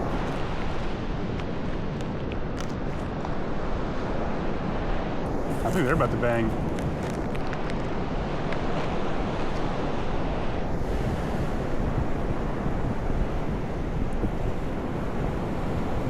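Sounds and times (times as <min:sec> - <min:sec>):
wind buffeting microphone: 0:00.0 - 0:16.0
ocean surf breaking: 0:05.3 - 0:12.5.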